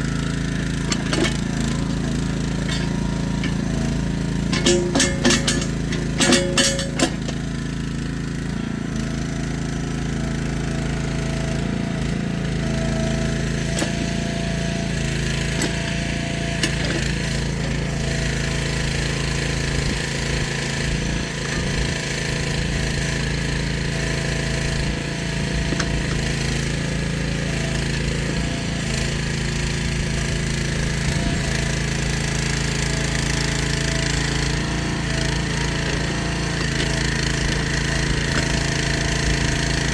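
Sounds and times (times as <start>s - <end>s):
mini excavator running: 0.0s - 39.9s.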